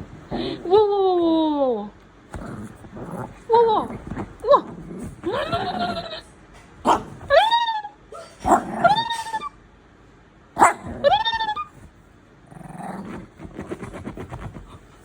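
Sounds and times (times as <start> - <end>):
small dog yipping: 10.6 - 11.8.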